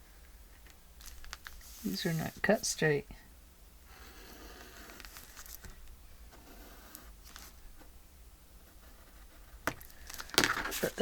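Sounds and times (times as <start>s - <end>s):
paper rustling: 1.0s - 2.7s, 5.0s - 5.8s, 7.2s - 7.6s, 9.7s - 11.0s.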